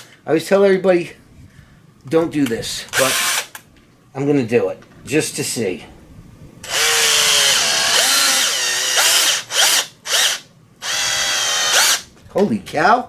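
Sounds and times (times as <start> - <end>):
power drill driving screws: 2.9 - 3.5, 6.6 - 12.1.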